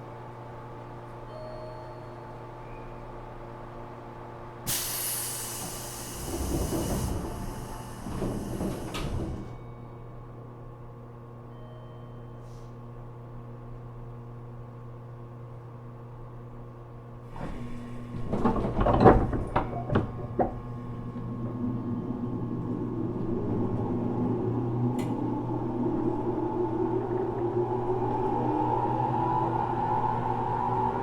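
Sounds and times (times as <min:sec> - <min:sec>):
train car hum: 0:00.0 - 0:31.0
clunks and knocks: 0:17.4 - 0:21.3.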